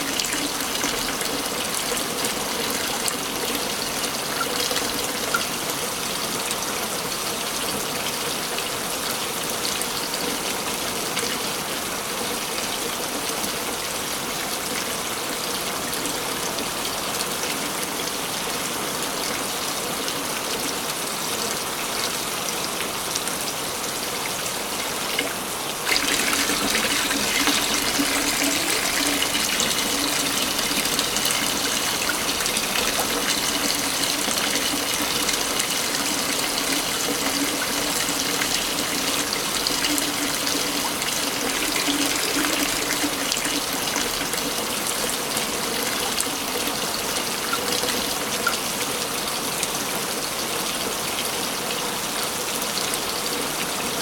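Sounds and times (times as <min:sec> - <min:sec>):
waterfall rushing: 0:25.5 - 0:44.2.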